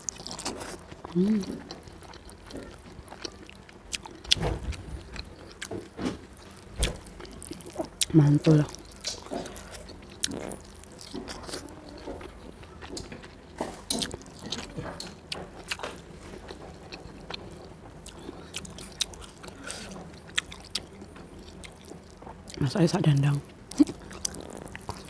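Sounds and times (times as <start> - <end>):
person chewing food wetly: 0.0 - 25.0.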